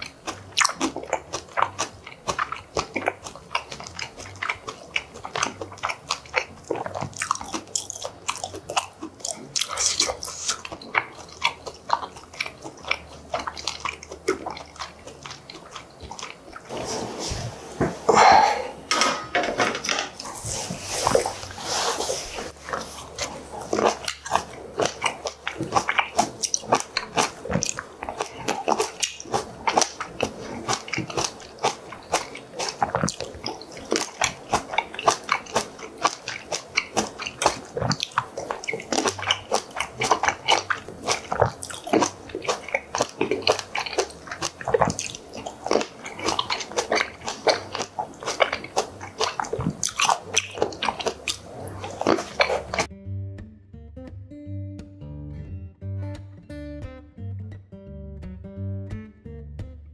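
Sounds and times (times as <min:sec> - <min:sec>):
crunching and chewing fruit: 0:00.0 - 0:17.4, 0:20.1 - 0:52.9
plates clattering on table: 0:18.9 - 0:20.2.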